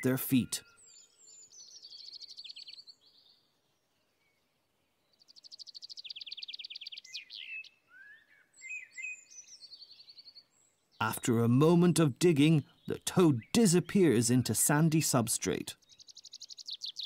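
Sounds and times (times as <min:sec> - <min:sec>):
songbird trilling: 0:05.4 - 0:10.4, 0:15.8 - 0:17.0.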